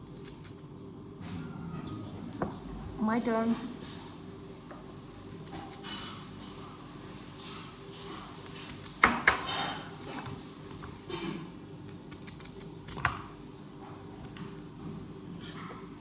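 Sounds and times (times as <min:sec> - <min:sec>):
knife chopping on cutting board: 0:05.3 - 0:06.6, 0:07.4 - 0:10.4, 0:11.9 - 0:13.3.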